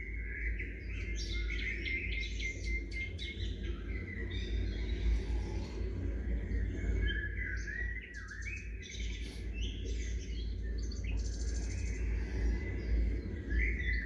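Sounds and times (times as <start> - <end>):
songbirds chirping: 0.0 - 14.0
low rumble: 3.2 - 7.7, 9.3 - 14.0.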